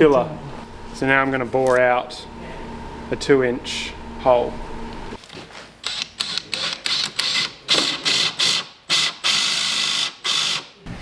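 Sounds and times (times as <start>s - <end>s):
power drill boring into wood: 5.9s - 10.7s.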